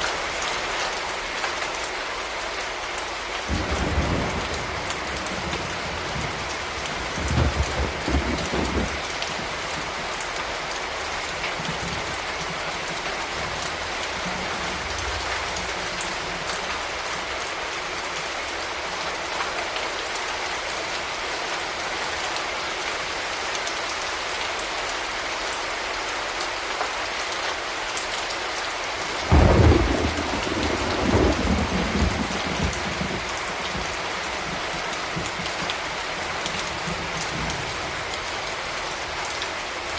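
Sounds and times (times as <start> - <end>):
steady rain: 0.0 - 39.9
thunder rumbling: 3.5 - 10.0, 29.2 - 38.1.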